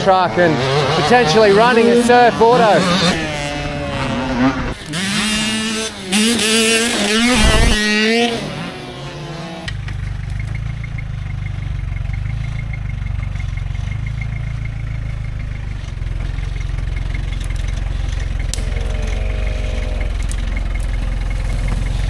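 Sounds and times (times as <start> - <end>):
vehicle engine running: 0.0 - 22.0
faint regular ticking: 8.2 - 22.0.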